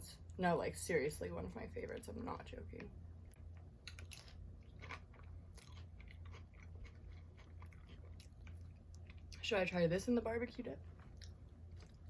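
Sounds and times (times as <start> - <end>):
faint low hum: 0.0 - 12.0
chewing and crunching chips: 3.4 - 9.5, 10.8 - 12.0.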